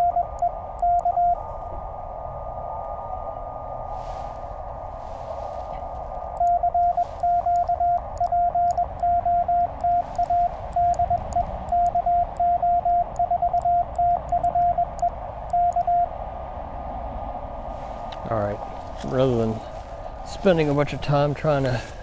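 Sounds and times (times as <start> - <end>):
morse code tone: 0.0 - 1.4, 6.1 - 16.2
radio band hiss: 3.7 - 8.2, 9.6 - 11.7, 17.8 - 22.0.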